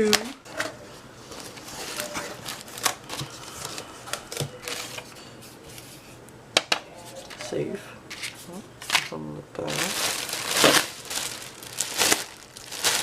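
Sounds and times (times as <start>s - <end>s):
cardboard rustling: 9.7s - 13.0s.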